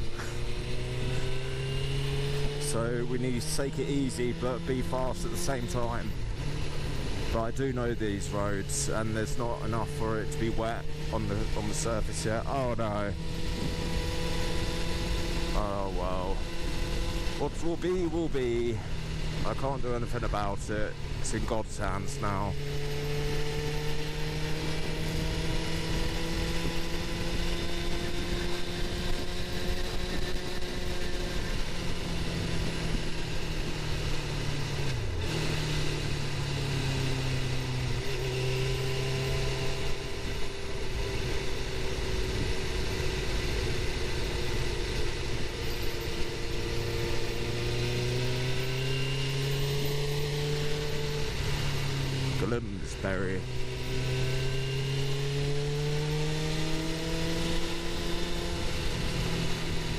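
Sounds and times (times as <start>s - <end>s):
motorcycle engine cruising: 0.0s - 59.9s
wind and road noise: 0.0s - 59.9s.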